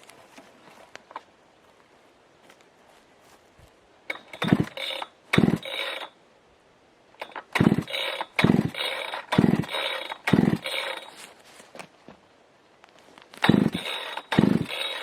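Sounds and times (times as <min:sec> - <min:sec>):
chainsaw pull-start cranking: 0:04.1 - 0:06.2, 0:07.2 - 0:11.3, 0:13.4 - 0:15.0.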